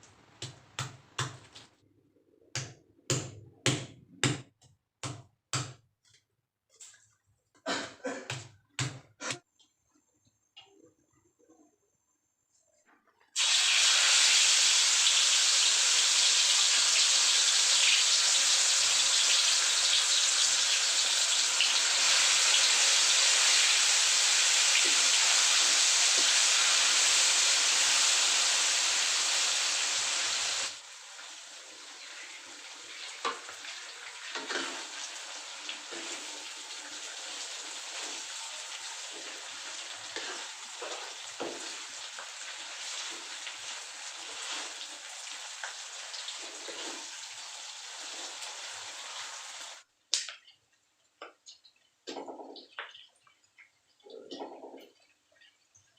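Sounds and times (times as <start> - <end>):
food sizzling in hot oil: 13.4 - 49.8
oil pops and crackles: 50.1 - 50.6.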